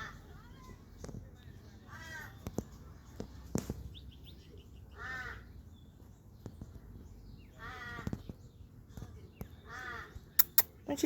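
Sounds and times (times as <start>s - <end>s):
crow cawing: 5.0s - 5.5s, 7.6s - 8.1s
sharp clicks: 10.4s - 10.7s.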